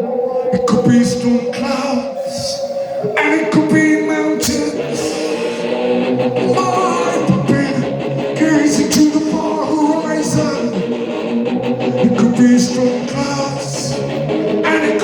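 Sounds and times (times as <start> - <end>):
electric guitars: 0.0 - 15.0
person singing: 0.0 - 15.0
drums: 3.6 - 15.0.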